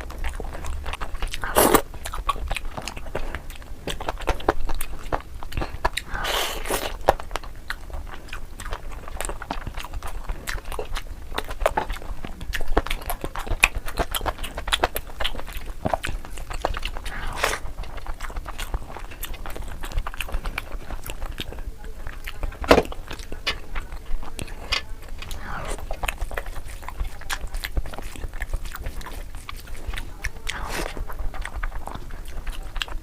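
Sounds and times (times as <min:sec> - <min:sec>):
wet chewing and biting: 0:00.0 - 0:33.0
tearing or slurping smears: 0:16.8 - 0:17.8, 0:25.2 - 0:26.6, 0:29.9 - 0:31.2.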